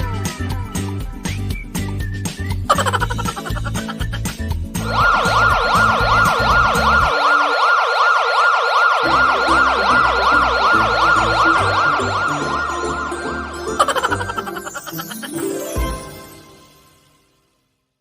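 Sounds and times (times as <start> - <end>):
siren in yelp mode: 4.8 - 13.5.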